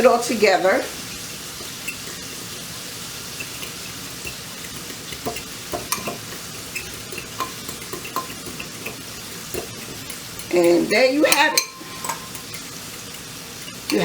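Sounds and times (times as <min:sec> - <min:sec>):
steady hiss: 0:00.0 - 0:14.0
spoon stirring thick sauce: 0:01.3 - 0:14.0
spoon tapping bowl: 0:03.3 - 0:14.0.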